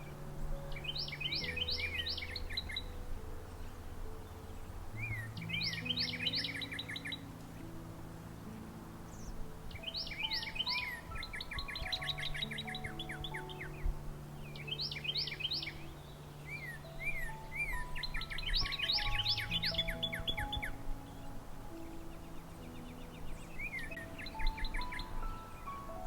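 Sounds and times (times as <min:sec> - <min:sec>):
soft background music: 0:00.0 - 0:26.0
songbird whistling: 0:05.0 - 0:07.3, 0:09.2 - 0:26.0.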